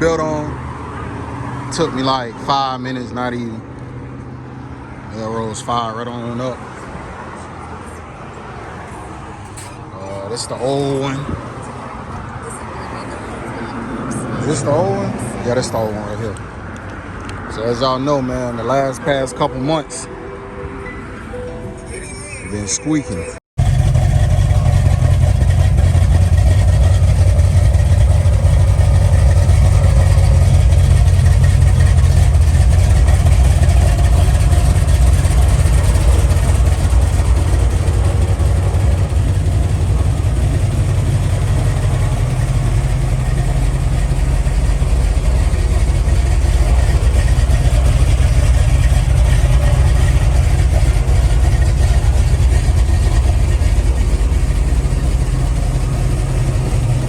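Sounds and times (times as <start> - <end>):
car engine idling: 23.6 - 57.0.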